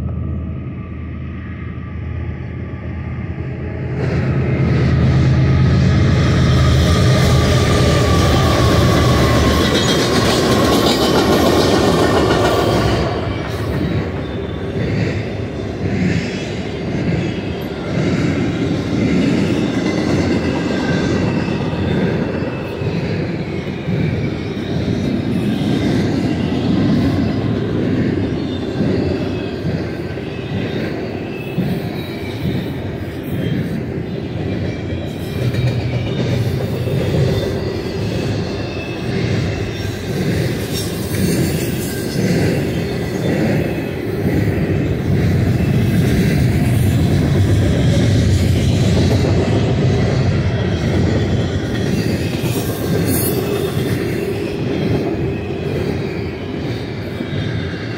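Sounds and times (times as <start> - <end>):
diesel locomotives droning: 0.0 - 57.9
freight cars rumbling: 42.5 - 56.1.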